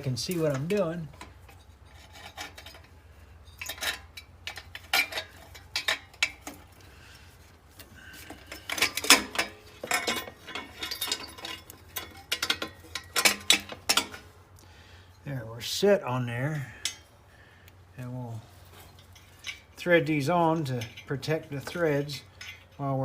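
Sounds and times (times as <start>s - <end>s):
metal clinks and knocks: 0.0s - 6.9s, 7.7s - 14.4s, 18.6s - 23.0s.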